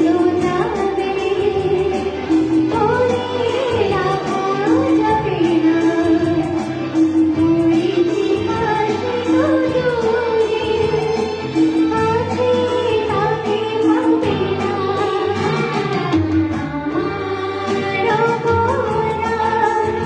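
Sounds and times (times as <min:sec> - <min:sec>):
instrumental accompaniment with beat: 0:00.0 - 0:20.0
woman singing: 0:00.0 - 0:20.0.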